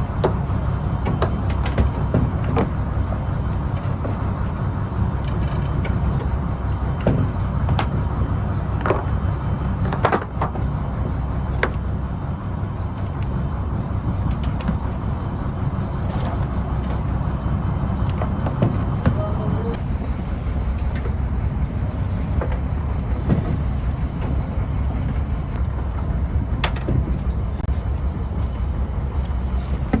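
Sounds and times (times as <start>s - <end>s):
diesel engine low rumble: 0.0s - 30.0s.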